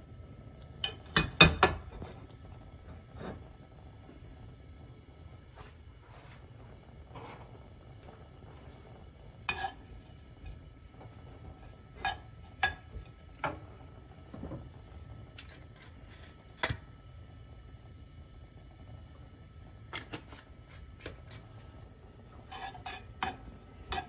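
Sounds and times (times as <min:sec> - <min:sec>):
utensil clinking against cookware: 0:22.5 - 0:24.0.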